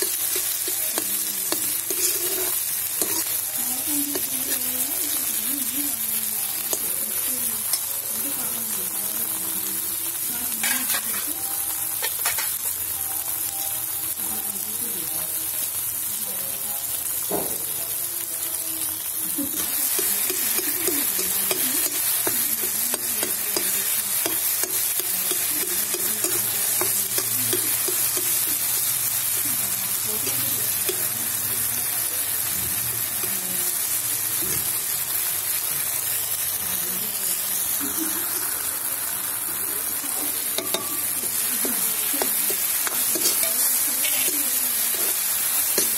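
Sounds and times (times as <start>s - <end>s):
ladle stirring and scraping pan: 0.0s - 5.2s, 10.6s - 11.3s, 12.0s - 12.7s, 19.6s - 29.4s, 40.1s - 45.9s
onions and tomatoes sizzling: 0.0s - 45.9s.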